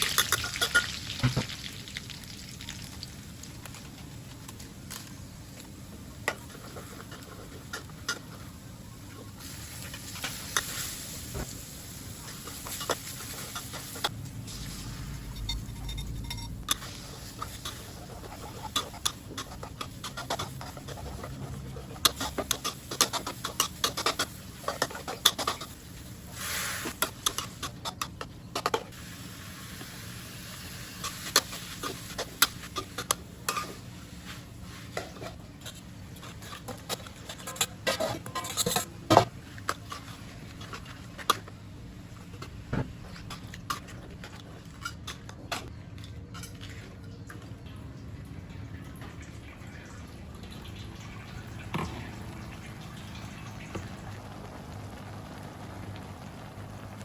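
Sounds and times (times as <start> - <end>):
metal utensils clinking on cookware: 0.0 - 1.0.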